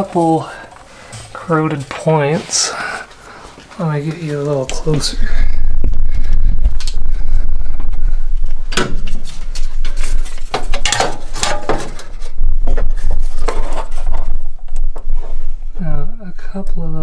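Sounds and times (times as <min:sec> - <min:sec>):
low handling rumble: 0:04.0 - 0:17.0.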